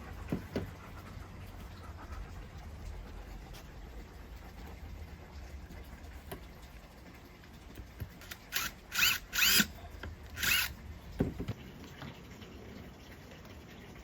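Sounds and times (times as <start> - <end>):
power drill whining: 8.2 - 9.7, 10.4 - 10.7.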